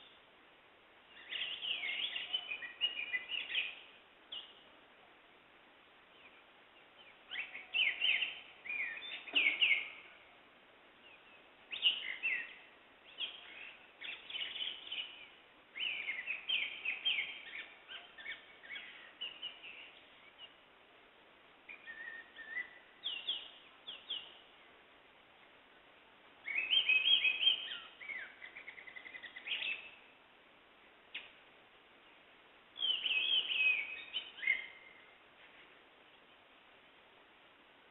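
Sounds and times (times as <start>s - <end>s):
songbirds chirping: 0.0s - 37.9s.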